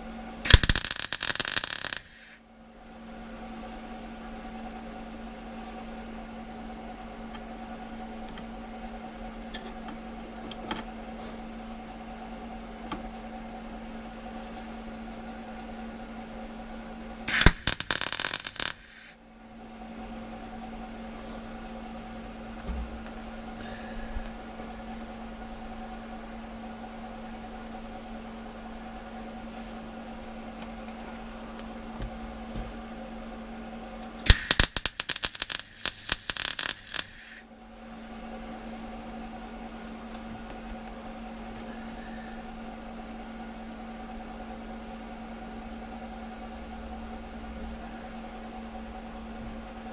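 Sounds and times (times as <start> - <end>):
steady electrical hum: 0.0 - 49.9
welding arc crackling: 0.5 - 2.4, 17.3 - 19.2, 34.2 - 37.4.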